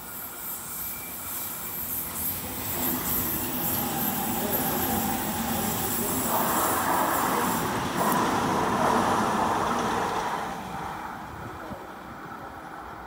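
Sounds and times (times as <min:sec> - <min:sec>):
train wheels running on rail: 0:00.0 - 0:13.0.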